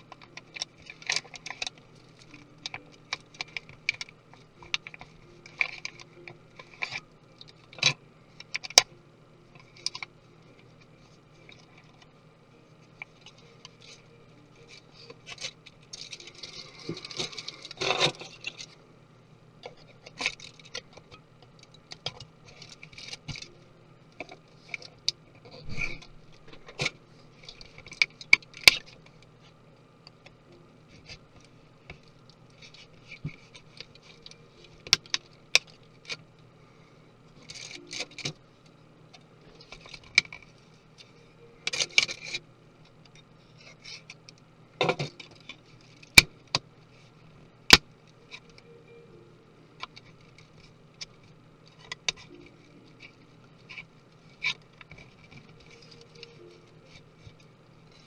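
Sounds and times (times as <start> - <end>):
small tools and metal parts clicking: 0.0 - 8.9, 12.9 - 18.8, 19.6 - 29.2, 37.4 - 38.4, 39.1 - 46.6
steady low hum: 0.0 - 58.0.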